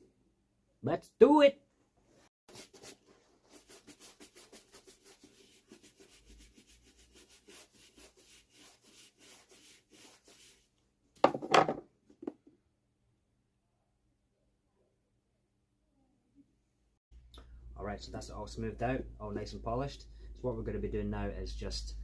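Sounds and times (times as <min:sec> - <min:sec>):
brush rubbing leather boot: 0:02.5 - 0:10.6.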